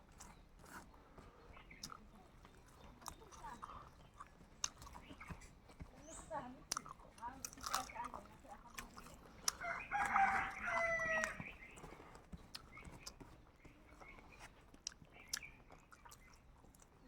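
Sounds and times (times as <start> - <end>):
chewing clicks and smacks: 0.0 - 17.0
rooster crowing: 9.6 - 11.5.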